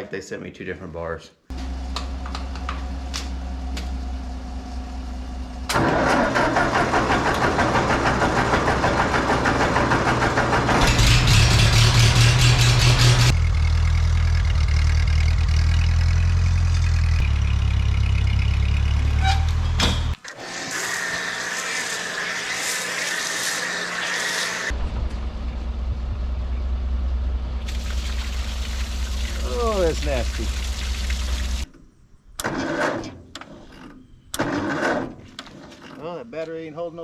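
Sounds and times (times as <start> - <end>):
tractor engine running: 1.6 - 20.2, 24.7 - 31.7.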